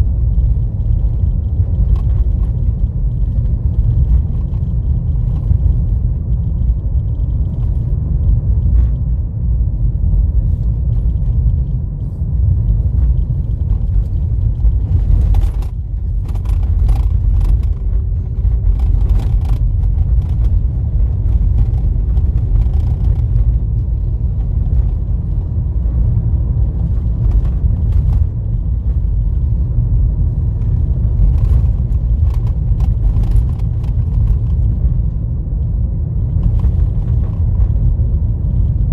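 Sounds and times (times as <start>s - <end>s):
clatters and knocks: 0.0s - 9.2s, 9.8s - 38.9s
car tyres rumbling on dirt road: 0.0s - 38.9s.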